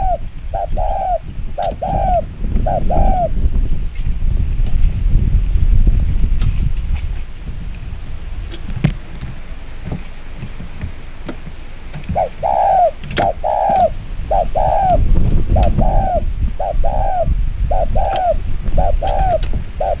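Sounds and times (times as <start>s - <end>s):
dove cooing: 0.0s - 3.5s, 7.1s - 20.0s
low wind-like rumble: 0.0s - 20.0s
clicks: 13.0s - 13.8s.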